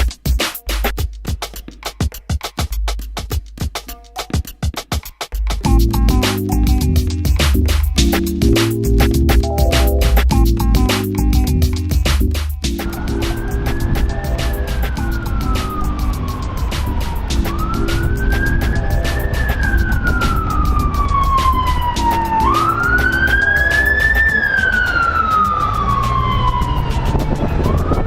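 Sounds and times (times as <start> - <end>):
background music with steady beat: 0.0 - 28.0
siren-like wail: 12.8 - 28.0.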